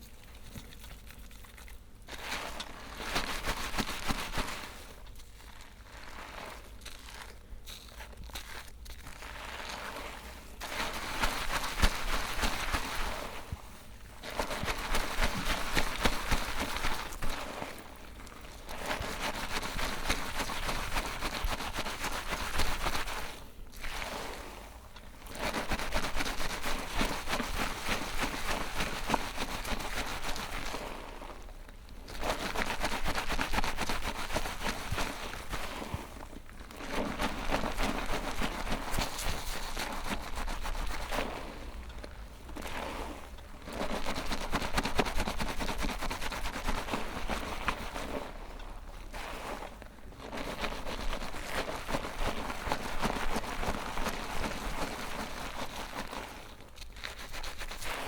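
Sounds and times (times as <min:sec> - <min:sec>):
hair being shampooed: 0:02.1 - 0:04.9, 0:09.1 - 0:24.7, 0:25.3 - 0:31.4, 0:32.2 - 0:36.2, 0:36.9 - 0:41.7, 0:50.4 - 0:56.2.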